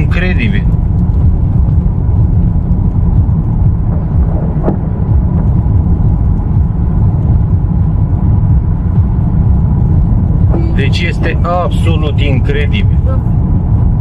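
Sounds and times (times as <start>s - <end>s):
loud low rumbling: 0.0s - 14.0s.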